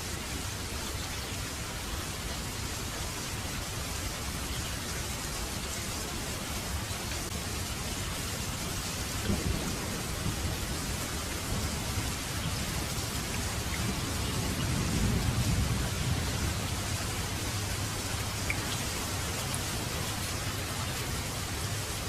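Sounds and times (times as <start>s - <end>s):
heavy rain falling: 0.0s - 22.0s
low rumble of thunder: 8.9s - 21.9s.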